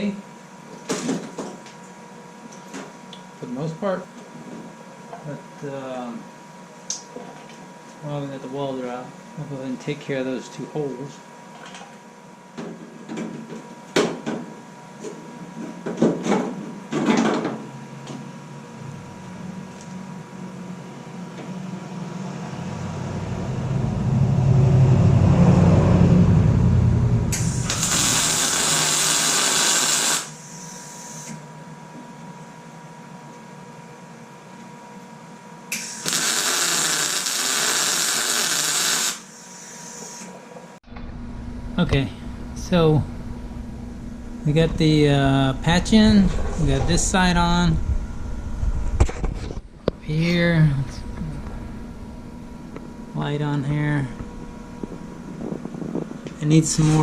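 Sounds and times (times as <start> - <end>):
low rumble: 22.0 - 28.0, 40.9 - 50.1, 50.8 - 56.4
welder crackling hiss: 27.4 - 31.4, 35.7 - 40.3.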